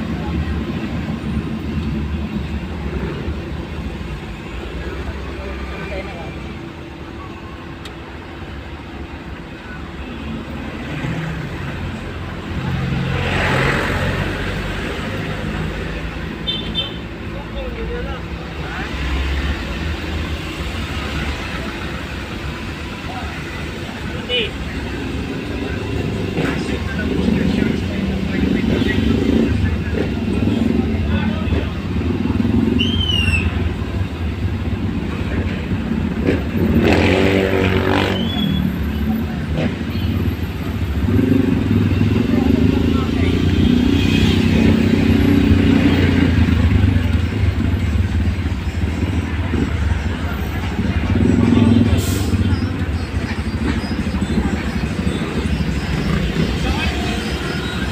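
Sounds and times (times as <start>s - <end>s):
road traffic engines: 0.0s - 57.9s
vehicle revving close: 25.2s - 57.9s.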